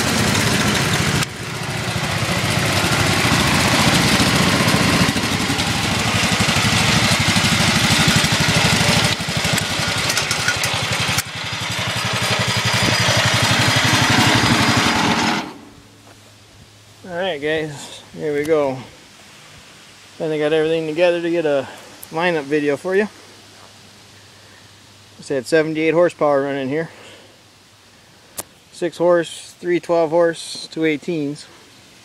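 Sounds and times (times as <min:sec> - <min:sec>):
small tractor engines idling fast: 0:00.0 - 0:15.6.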